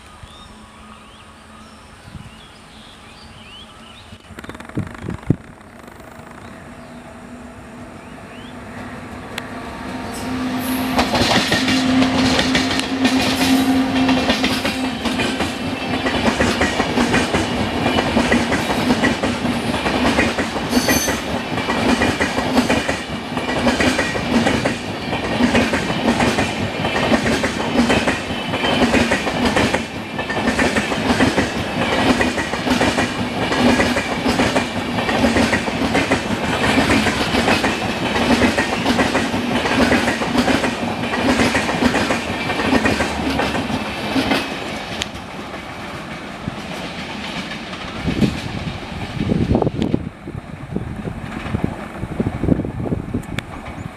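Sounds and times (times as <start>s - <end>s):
train wheels clattering over rail joints: 10.8s - 50.0s.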